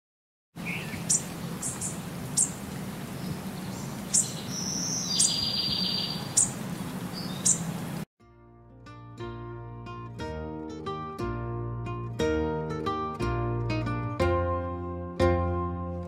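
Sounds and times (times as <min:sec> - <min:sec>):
bird trilling: 0:00.6 - 0:07.9
birds chirping: 0:00.6 - 0:08.0.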